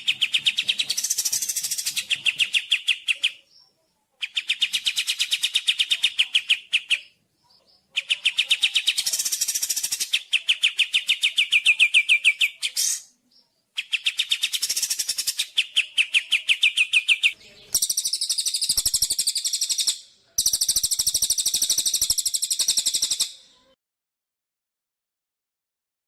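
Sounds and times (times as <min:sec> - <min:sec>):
songbird trilling: 0:14.5 - 0:23.5.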